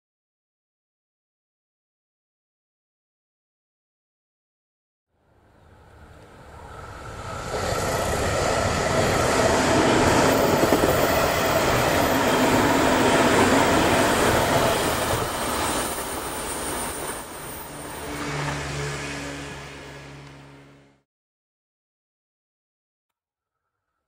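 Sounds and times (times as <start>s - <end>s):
train passing at speed: 5.2s - 21.0s.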